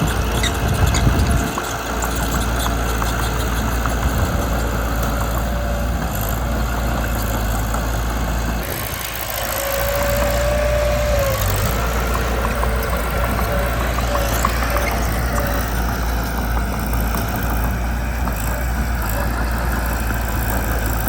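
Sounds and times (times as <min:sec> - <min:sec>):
bulldozer diesel engine running: 0:00.0 - 0:21.0
high squeal: 0:08.7 - 0:16.4.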